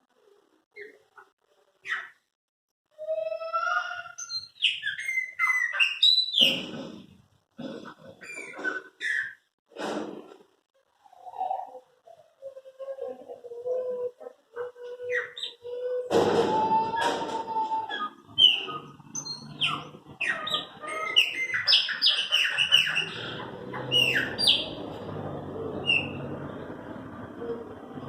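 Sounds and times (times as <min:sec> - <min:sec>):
blackbird whistled song: 0:04.2 - 0:06.6.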